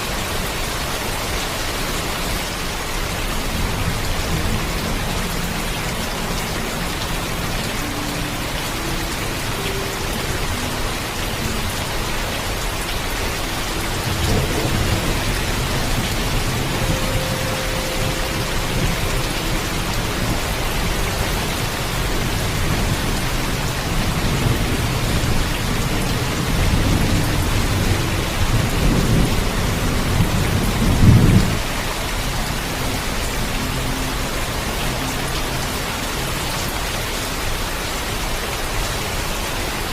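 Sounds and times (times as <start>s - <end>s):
heavy rainfall: 0.0s - 39.9s
thunder rumbling: 13.0s - 32.2s.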